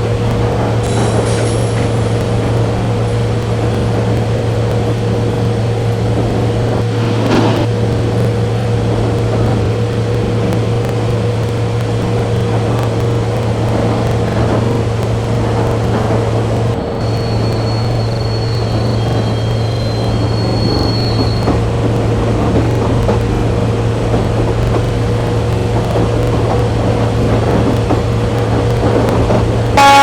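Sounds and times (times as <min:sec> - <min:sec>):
train rumbling: 0:00.0 - 0:30.0
rush of air: 0:06.3 - 0:08.2.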